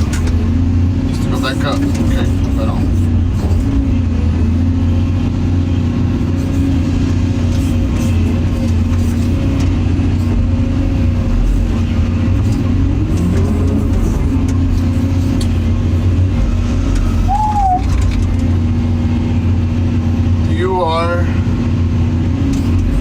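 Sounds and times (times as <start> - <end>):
excavator diesel engine droning: 0.0 - 23.0
short rising and falling squeal: 16.5 - 18.2.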